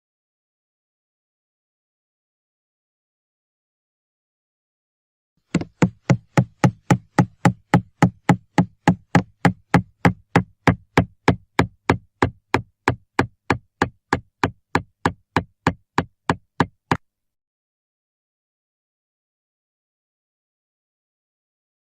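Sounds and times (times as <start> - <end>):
sharp knocks: 5.5 - 17.0.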